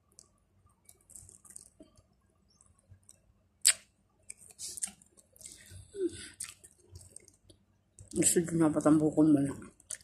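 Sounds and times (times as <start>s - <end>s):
person chewing: 0.8s - 2.0s, 3.0s - 8.1s, 9.8s - 10.0s.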